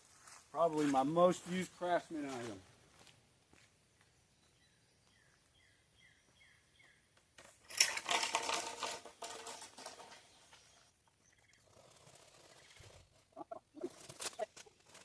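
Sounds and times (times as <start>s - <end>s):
bird chirping: 4.1s - 7.1s, 10.3s - 13.5s
leaves and twigs rustling: 11.6s - 15.0s.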